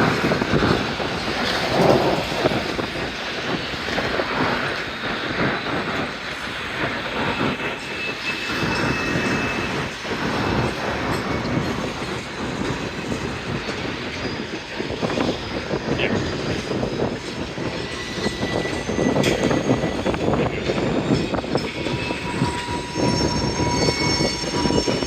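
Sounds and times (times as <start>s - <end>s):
train wheels clattering on track: 0.0s - 25.0s
high wheel squeal: 7.3s - 25.0s.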